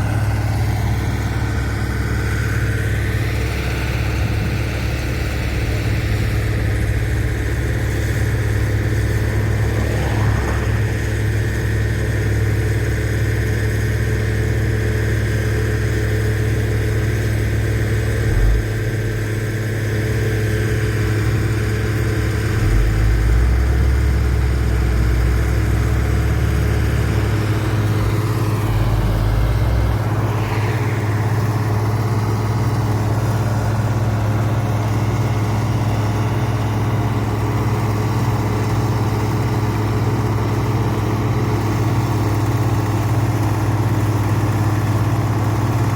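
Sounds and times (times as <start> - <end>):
diesel engine running steadily: 0.0 - 45.9
faint whine: 3.5 - 12.4, 27.5 - 33.8.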